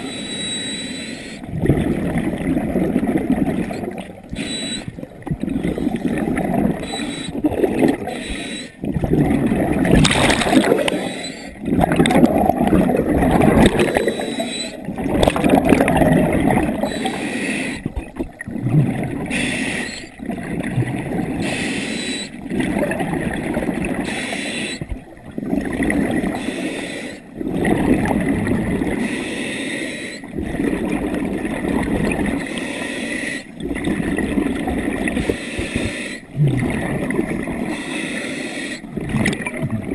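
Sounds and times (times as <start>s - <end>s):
regulator breathing underwater: 0.0s - 2.1s, 4.2s - 18.0s, 18.9s - 20.2s, 21.2s - 22.5s, 23.9s - 24.9s, 26.2s - 27.5s, 28.8s - 30.9s, 32.3s - 33.7s, 35.0s - 39.1s
gurgling exhaust bubbles: 1.5s - 4.3s, 4.9s - 8.2s, 8.8s - 17.2s, 17.8s - 19.4s, 20.1s - 21.5s, 22.4s - 24.0s, 27.3s - 29.0s, 30.3s - 32.4s, 33.6s - 37.7s, 38.9s - 39.9s.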